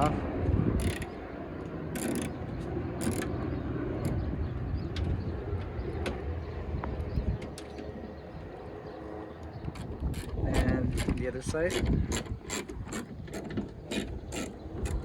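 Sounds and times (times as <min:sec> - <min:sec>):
ratchet wrench clicking: 0:00.8 - 0:01.1, 0:02.0 - 0:02.4, 0:03.0 - 0:03.3.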